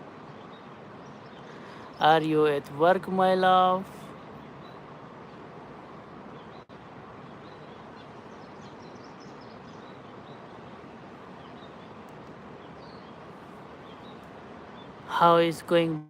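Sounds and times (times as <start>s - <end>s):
outdoor background noise: 0.0s - 16.0s
faint high bird chirps: 3.8s - 16.0s.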